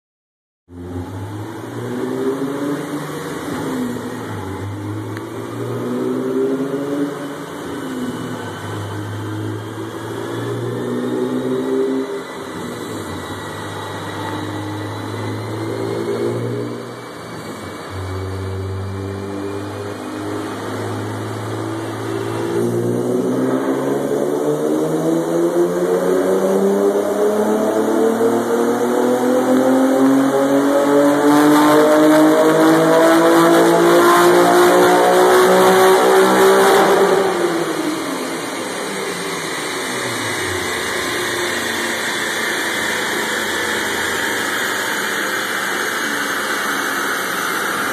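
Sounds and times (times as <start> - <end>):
car engine exhaust: 0.7 - 47.9
car engine idling: 37.9 - 47.9.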